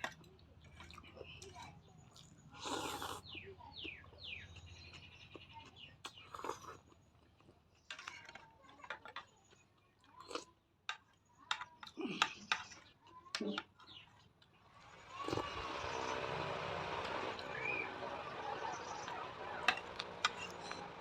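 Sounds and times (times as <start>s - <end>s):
chewing and mouth clicks: 0.0s - 14.5s.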